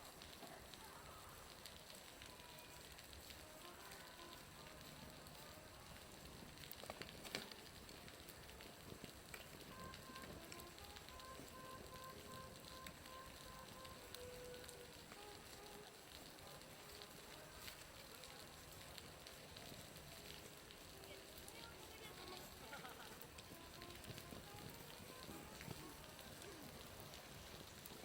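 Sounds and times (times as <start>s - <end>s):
water dripping from roof: 0.0s - 28.0s.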